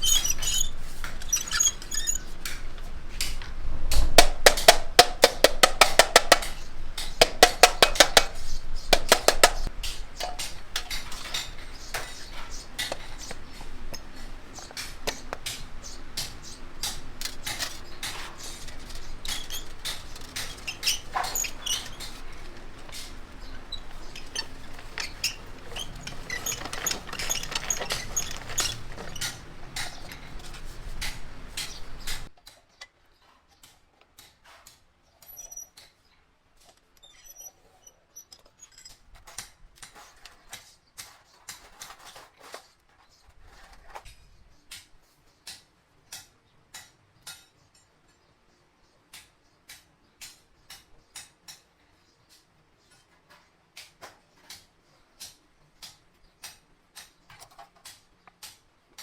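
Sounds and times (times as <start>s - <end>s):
metallic clicks and taps: 3.2s - 12.2s.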